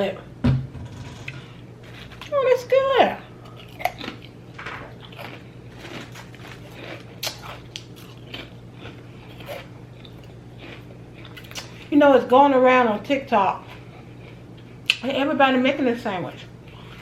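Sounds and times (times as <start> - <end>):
person chewing sandwich: 1.3 - 2.3, 3.4 - 11.9, 13.6 - 15.0.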